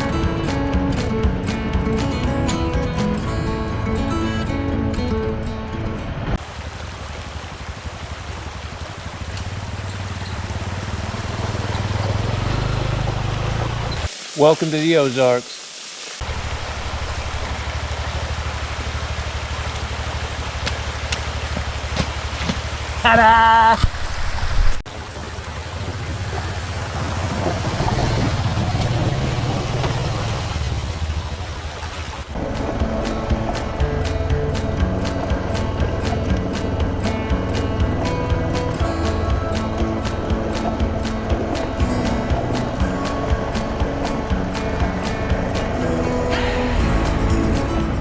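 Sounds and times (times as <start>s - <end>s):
motorcycle engine running: 0.0s - 6.7s, 7.5s - 14.1s, 32.4s - 48.0s
steady rushing hiss: 0.0s - 12.4s, 14.0s - 23.0s, 32.4s - 48.0s.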